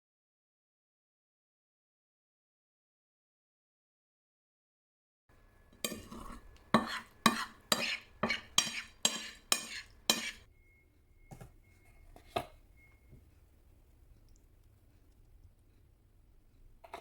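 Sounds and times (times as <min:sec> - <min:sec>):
utensil clinking against a dish: 0:05.6 - 0:13.4.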